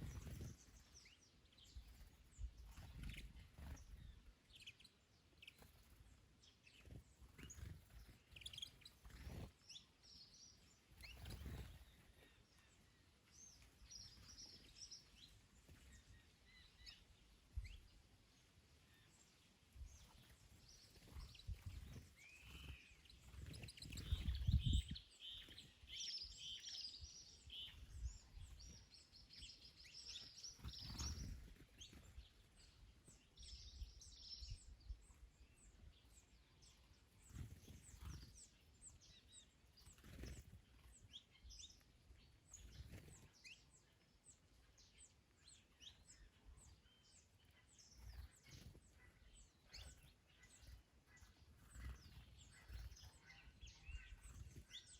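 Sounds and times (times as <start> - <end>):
wind rumbling on microphone: 0.0 - 4.3, 19.8 - 36.3
small birds singing: 0.0 - 54.9.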